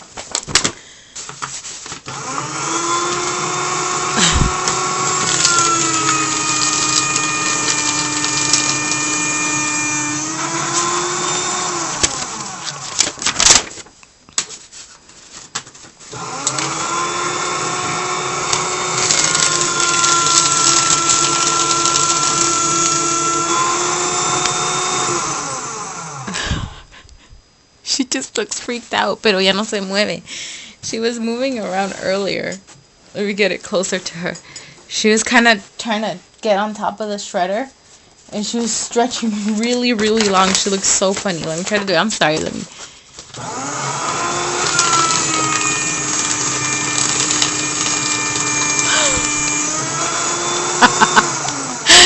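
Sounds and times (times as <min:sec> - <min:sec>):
paper shredder motor whining: 0:01.9 - 0:13.8, 0:16.1 - 0:26.8, 0:39.6 - 0:42.5, 0:43.3 - 0:52.0.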